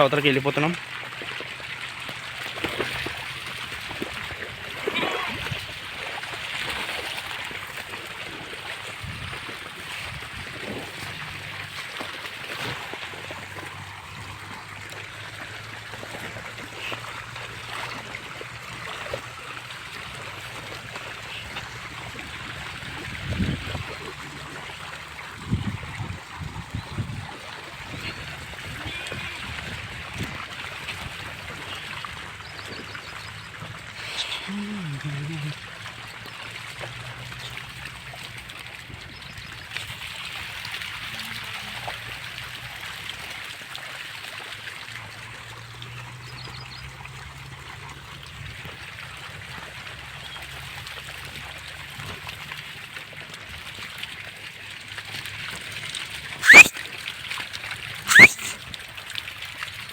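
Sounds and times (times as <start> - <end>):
stream running: 0.0 - 59.9
sheep splashing through water: 0.8 - 38.4
low calls: 56.4 - 56.7, 58.1 - 58.6.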